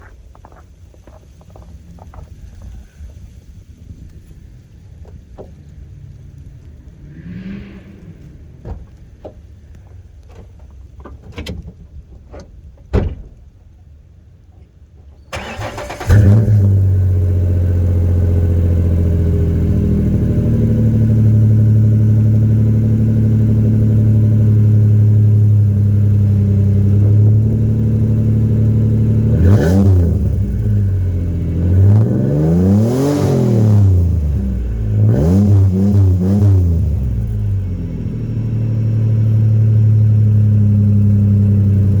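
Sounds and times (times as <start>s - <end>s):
truck engine starting and idling: 15.1s - 42.0s
engine revving: 15.3s - 42.0s.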